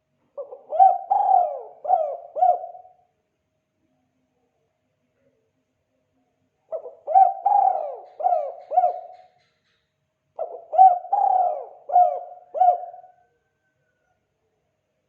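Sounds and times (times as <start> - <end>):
dove cooing: 0.4 - 3.0, 6.7 - 9.4, 10.4 - 13.3.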